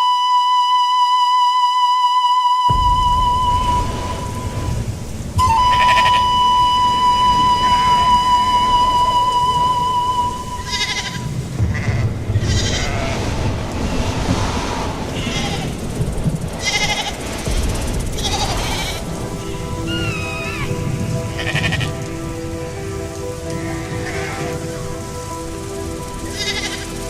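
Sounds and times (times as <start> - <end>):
wavering whistle: 0.0 - 11.1
steady drone tones: 2.6 - 27.0
low rumbling background: 2.7 - 27.0.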